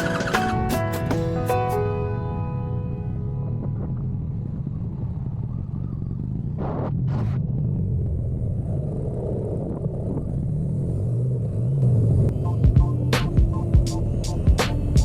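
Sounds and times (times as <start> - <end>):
motorcycle engine running: 10.7 - 15.0.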